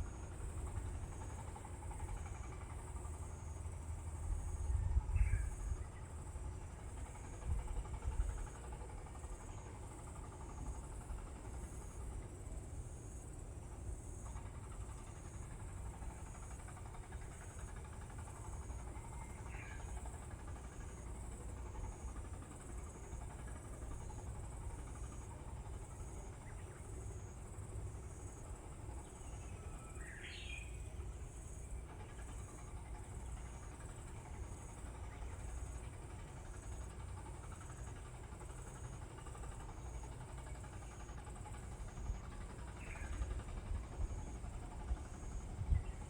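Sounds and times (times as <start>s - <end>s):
insects trilling: 14.0s - 46.0s.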